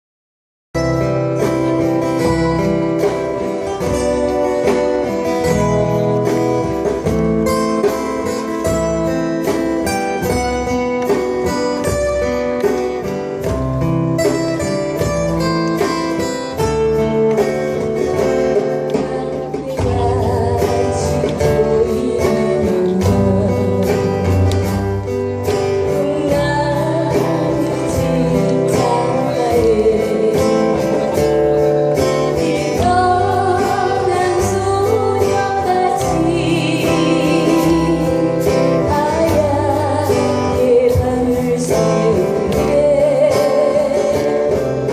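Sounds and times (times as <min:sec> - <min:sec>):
bass: 0:00.7 - 0:44.9
acoustic guitar: 0:00.8 - 0:44.9
person singing: 0:18.0 - 0:44.9.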